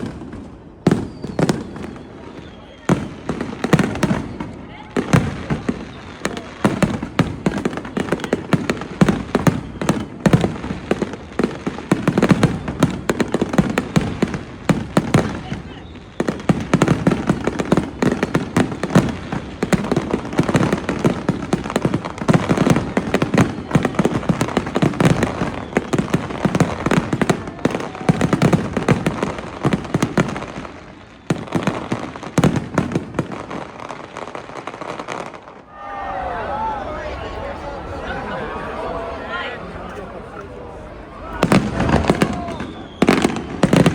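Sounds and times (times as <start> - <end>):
fireworks bursting: 0.0 - 43.9.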